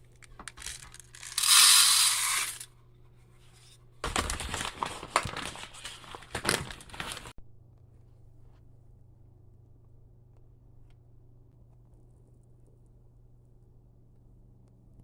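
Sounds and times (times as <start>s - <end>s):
bird seed pouring hiss: 0.6s - 2.6s
bag crinkling: 4.0s - 7.3s.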